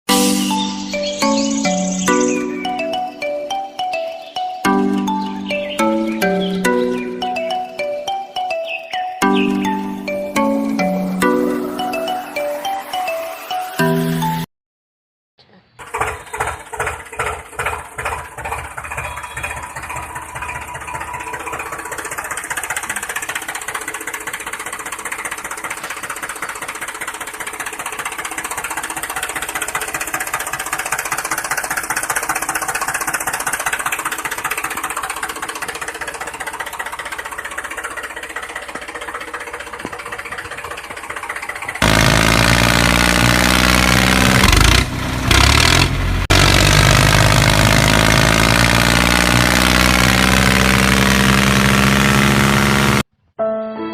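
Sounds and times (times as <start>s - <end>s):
louder engine: 0.1s - 14.5s, 15.9s - 53.1s
mini tractor engine running: 15.8s - 53.1s.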